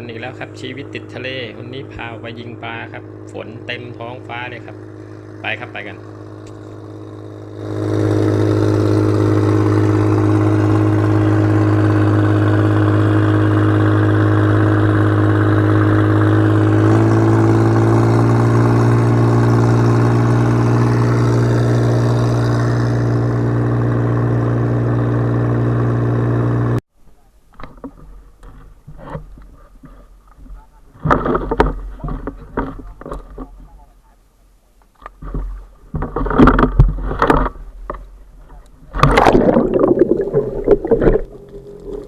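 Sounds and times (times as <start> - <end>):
boat engine running: 0.0 - 26.8, 35.2 - 42.0.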